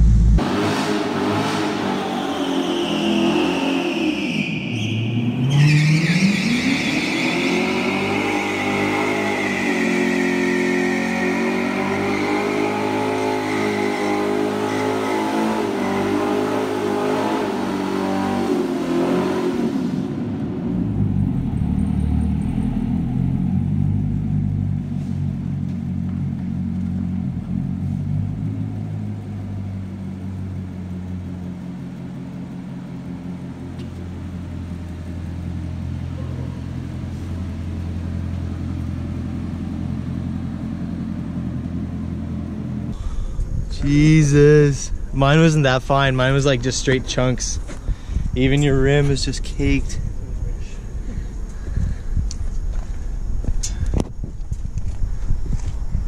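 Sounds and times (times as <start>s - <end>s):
sports car engine at high revs: 0.0s - 4.2s, 5.9s - 43.0s.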